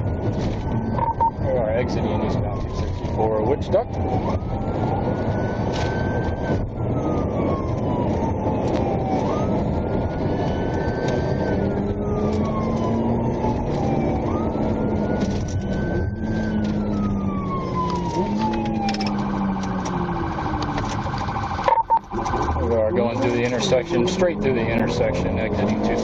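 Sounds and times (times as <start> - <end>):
engine and road noise: 0.0 - 26.0
police siren wailing: 0.0 - 26.0
siren yelp: 0.0 - 26.0.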